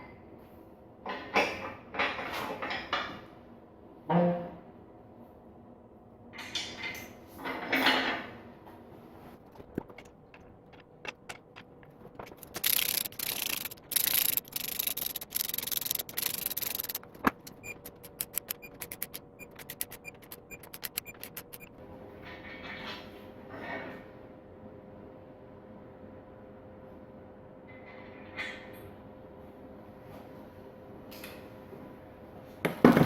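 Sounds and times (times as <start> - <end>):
rubbing or scraping: 9.4 - 21.7
hand tool clicks: 9.9 - 21.7.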